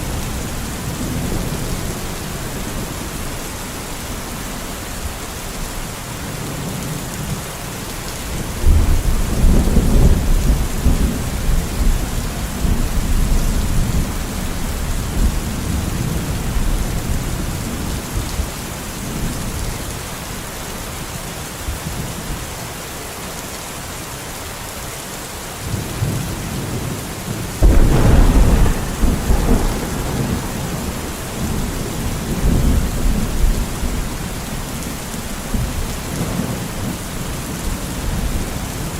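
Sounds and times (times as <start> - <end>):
rain hissing: 27.2 - 38.9
thunder rolling: 27.6 - 34.3.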